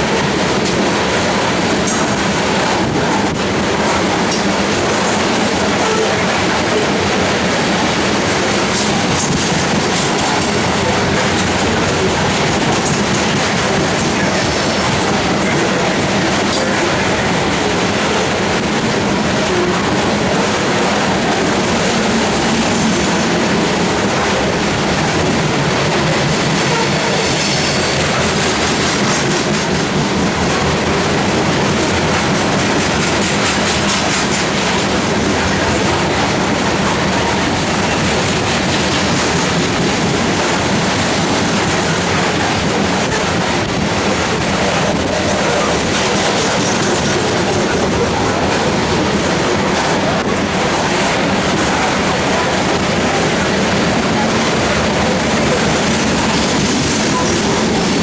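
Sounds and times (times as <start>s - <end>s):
heavy train rumble: 0.0s - 58.0s
train wheels clacking over rail joints: 0.0s - 58.0s.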